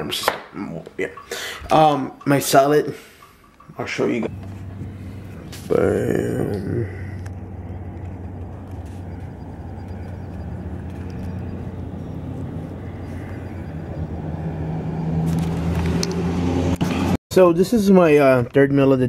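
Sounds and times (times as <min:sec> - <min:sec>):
car engine idling: 0:04.3 - 0:15.3.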